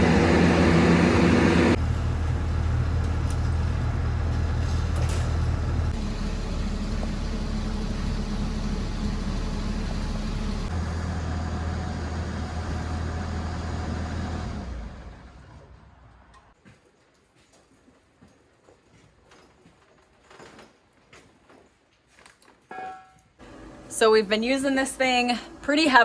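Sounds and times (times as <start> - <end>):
engine humming: 0.0 - 16.4, 23.4 - 26.0.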